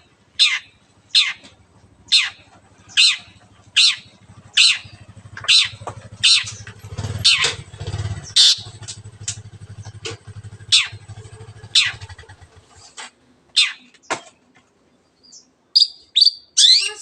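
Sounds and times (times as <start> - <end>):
low pulsing engine hum: 0.0 - 13.0
shrike sharp calls: 2.1 - 9.4, 10.6 - 12.3.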